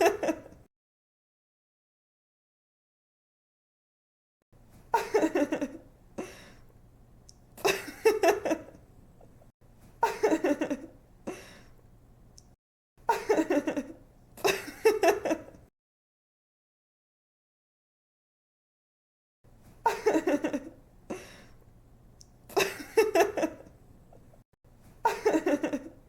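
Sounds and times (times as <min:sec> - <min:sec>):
woman giggling: 0:00.0 - 0:00.6, 0:04.9 - 0:05.8, 0:10.0 - 0:11.5, 0:13.1 - 0:15.6, 0:19.9 - 0:21.2, 0:22.5 - 0:23.7, 0:25.0 - 0:26.0.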